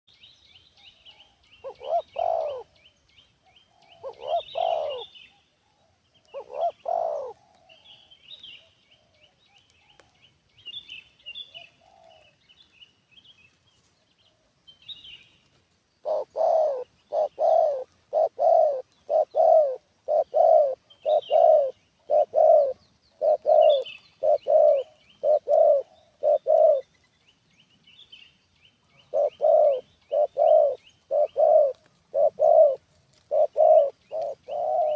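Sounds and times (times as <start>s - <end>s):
small birds chirping: 0.1s - 34.9s
dove cooing: 1.2s - 2.8s, 3.7s - 8.1s, 11.5s - 12.4s, 16.0s - 26.9s, 29.0s - 34.9s.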